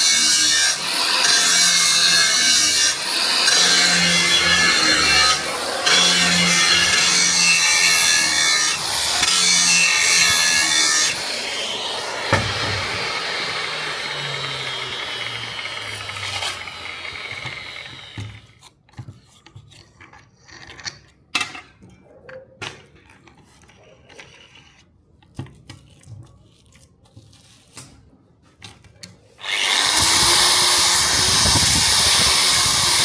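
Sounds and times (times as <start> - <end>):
power grinder winding down: 0.1 - 18.3, 29.4 - 33.0.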